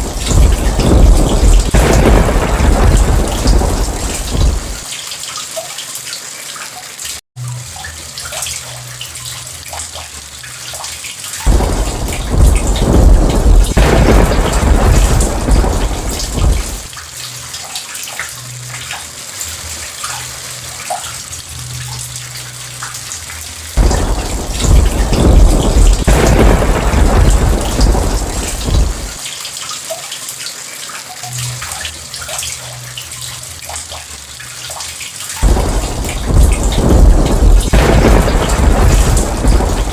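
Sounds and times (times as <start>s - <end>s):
rolling thunder: 0.0s - 4.9s, 11.5s - 16.9s, 23.8s - 29.2s, 35.4s - 39.9s
heavy rain falling: 0.0s - 6.2s, 11.3s - 39.9s.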